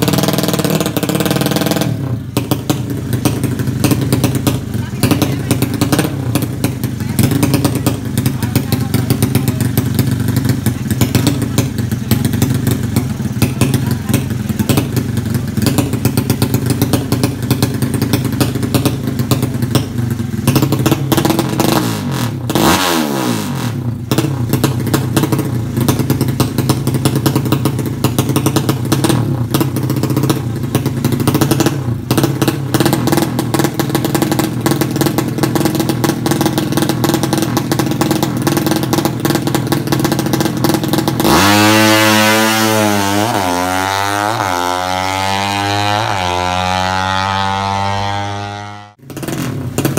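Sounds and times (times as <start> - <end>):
motorcycle engine clattering: 0.0 - 49.9.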